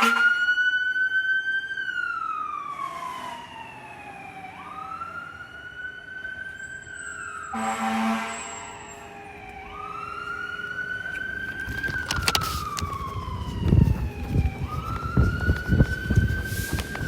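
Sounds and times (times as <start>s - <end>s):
fire engine siren wailing: 0.0s - 17.0s
truck rumble passing: 8.0s - 17.0s.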